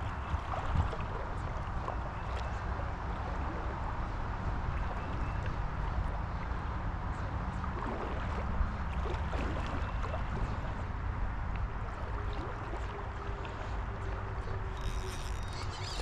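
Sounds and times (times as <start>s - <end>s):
faint ticks: 14.7s - 16.0s.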